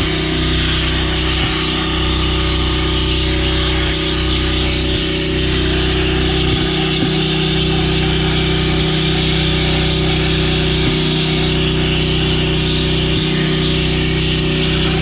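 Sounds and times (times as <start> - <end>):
pressure washer running: 0.0 - 15.0.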